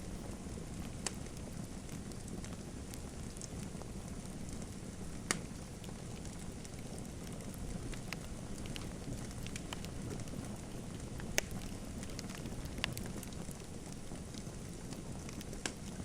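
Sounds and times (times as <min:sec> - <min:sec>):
fire crackles and pops: 0:00.0 - 0:16.0
low rumble of flames: 0:00.0 - 0:16.0.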